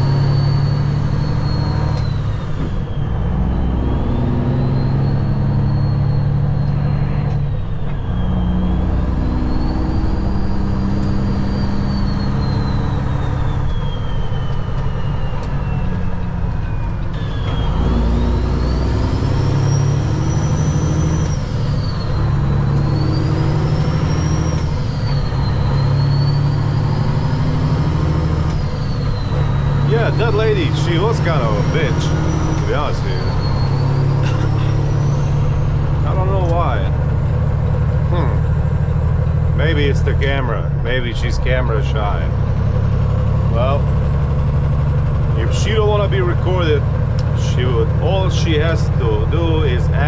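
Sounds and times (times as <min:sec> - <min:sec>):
truck diesel engine pulling: 0:00.0 - 0:50.0
thin high whistle: 0:00.2 - 0:26.8.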